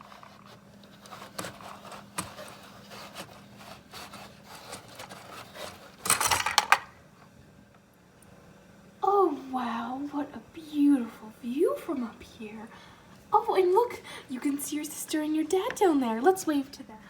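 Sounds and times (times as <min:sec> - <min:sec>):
rattling scrape: 0:00.0 - 0:06.7
plastic toy rubbing and clicking: 0:00.0 - 0:06.8.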